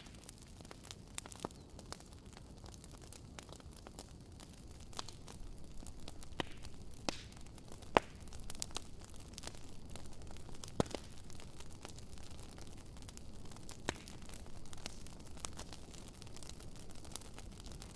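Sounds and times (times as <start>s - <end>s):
campfire crackling: 0.0s - 17.9s
low steady hiss: 4.8s - 17.9s.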